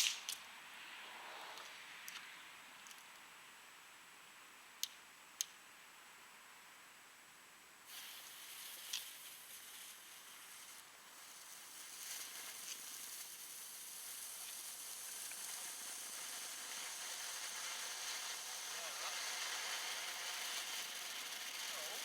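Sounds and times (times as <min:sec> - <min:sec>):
firework click: 0:00.0 - 0:00.5, 0:07.9 - 0:22.0
faint crackles: 0:07.9 - 0:22.0
fountain firework hissing: 0:07.9 - 0:22.0.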